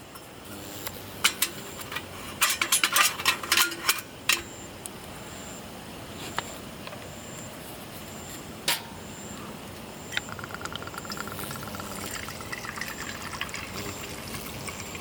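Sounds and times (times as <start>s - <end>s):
utensils and dishes clinking: 1.3s - 4.5s
faint insect chirps: 4.2s - 15.0s.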